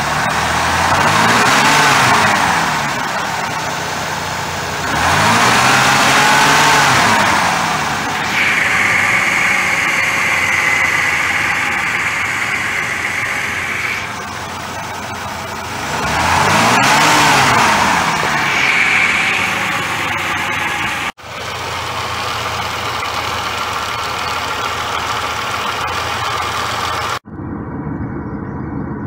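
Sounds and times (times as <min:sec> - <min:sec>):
car engine running and revving: 0:00.0 - 0:27.6
steady high whine: 0:05.7 - 0:23.6.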